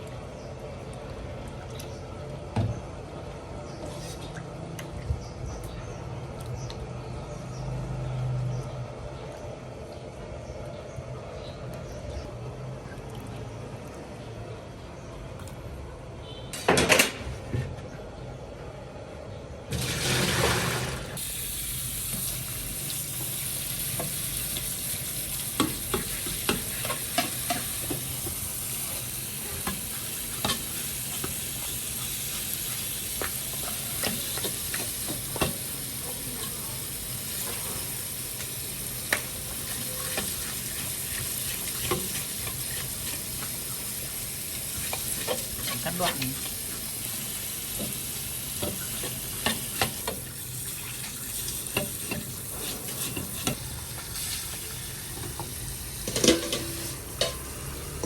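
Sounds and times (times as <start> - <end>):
food sizzling in hot oil: 19.7 - 58.0.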